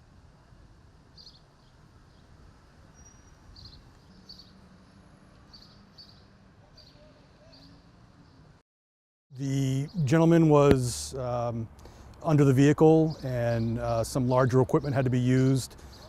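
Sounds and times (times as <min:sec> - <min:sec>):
bird chirps: 0:01.2 - 0:02.3, 0:02.9 - 0:04.6, 0:05.4 - 0:08.5.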